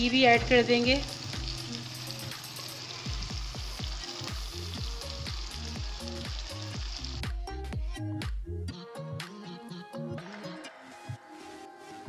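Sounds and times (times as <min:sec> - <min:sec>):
food sizzling in oil in a pan: 0:00.0 - 0:07.3
background music with low beat: 0:03.1 - 0:11.3.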